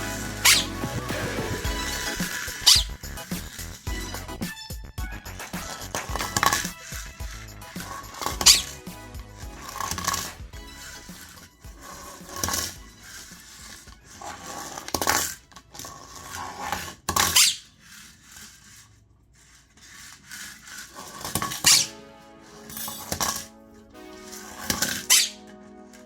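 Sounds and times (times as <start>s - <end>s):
plastic toys clattering on floor: 12.1s - 21.9s
parrot squeaks: 17.3s - 17.7s, 25.0s - 25.4s.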